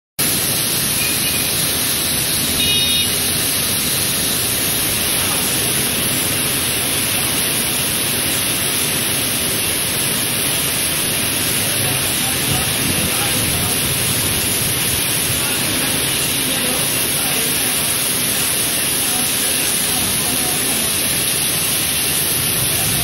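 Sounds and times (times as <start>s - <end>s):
heavy rain: 0.2s - 23.0s
strong wind: 11.7s - 16.2s.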